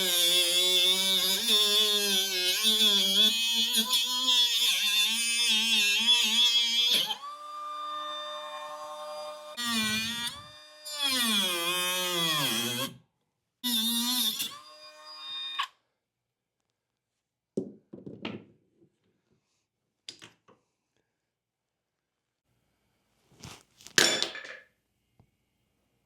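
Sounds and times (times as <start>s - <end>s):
power tool motor whining: 0.0s - 13.0s, 13.7s - 15.7s.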